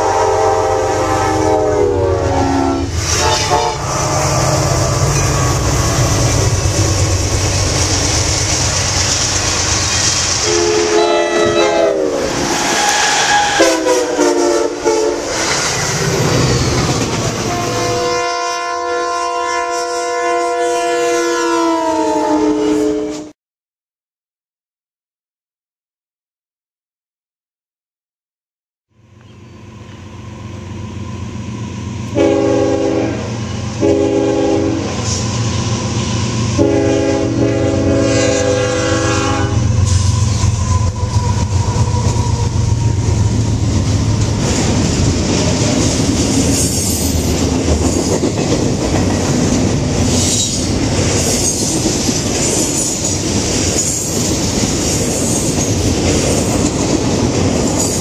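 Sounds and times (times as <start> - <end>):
train air horn blasts: 0.0 - 6.4, 10.4 - 15.6, 17.4 - 23.4, 32.1 - 35.4, 36.5 - 42.6
locomotive engine rumble: 2.0 - 11.6
high wheel squeal: 3.0 - 7.2, 12.4 - 13.7, 15.2 - 17.8, 39.8 - 43.3, 50.1 - 51.8
wheels clacking on rail: 4.2 - 11.7, 15.2 - 18.0, 33.6 - 58.0.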